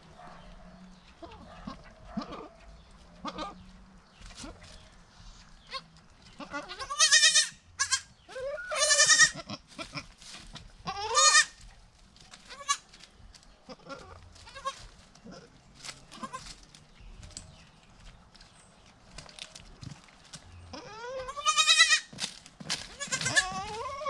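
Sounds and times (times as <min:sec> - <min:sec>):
goat bleating: 0:03.2 - 0:03.7, 0:05.6 - 0:10.1, 0:10.8 - 0:11.6, 0:12.4 - 0:12.9, 0:13.6 - 0:16.6, 0:20.7 - 0:22.1, 0:22.9 - 0:24.0
faint clicks and rustles: 0:11.6 - 0:20.8.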